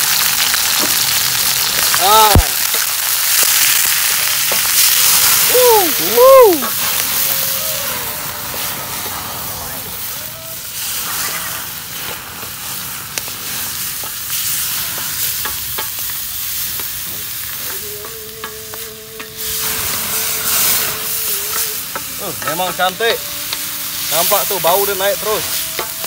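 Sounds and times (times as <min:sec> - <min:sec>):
flames flaring: 0:00.0 - 0:26.0
meat sizzling in hot oil: 0:00.0 - 0:26.0
spatula scraping a wok: 0:10.7 - 0:17.6, 0:19.2 - 0:26.0.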